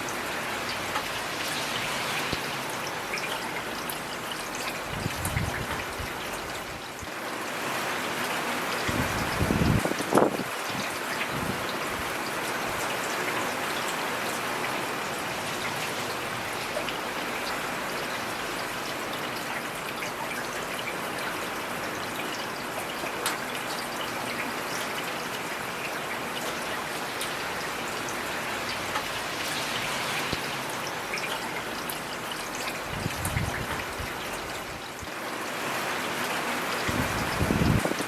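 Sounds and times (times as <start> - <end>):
heavy rain pattering: 0.0 - 38.0.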